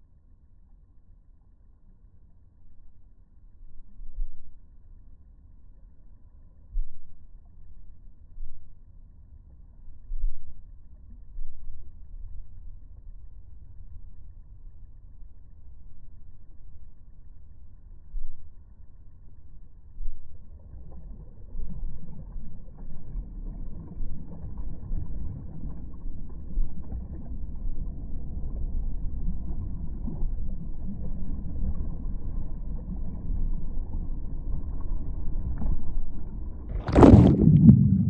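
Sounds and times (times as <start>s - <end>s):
surf rumbling: 36.8s - 38.0s
wave crashing: 36.8s - 38.0s.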